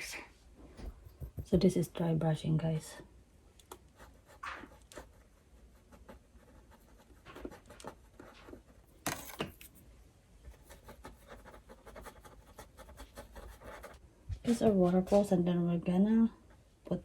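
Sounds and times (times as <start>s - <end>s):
paintbrush scratching on canvas: 10.5s - 15.2s.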